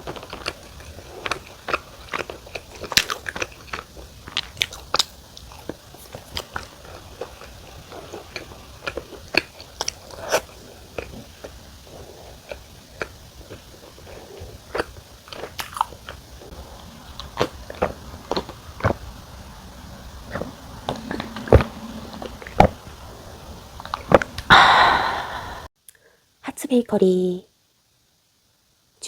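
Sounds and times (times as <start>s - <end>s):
chewing crunchy pizza crust: 0.0s - 22.7s
loud burst of noise: 24.5s - 25.7s.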